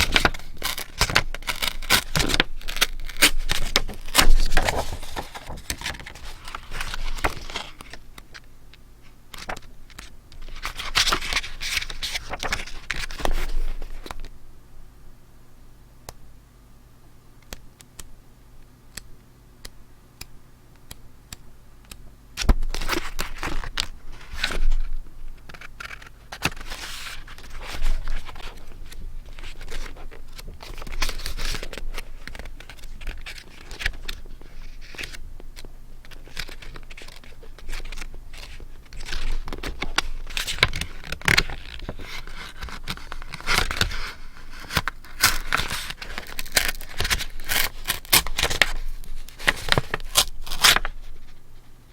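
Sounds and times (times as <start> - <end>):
paper crinkling and rustling: 0.0 - 8.4, 9.3 - 14.3, 22.4 - 51.7.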